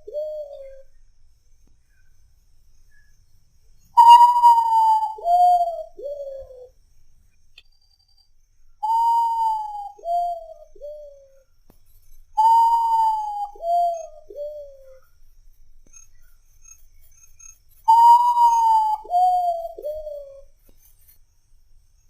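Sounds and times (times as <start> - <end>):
bird singing whistled phrase: 4.0 - 6.4, 8.8 - 11.2, 12.4 - 14.9, 17.9 - 20.4.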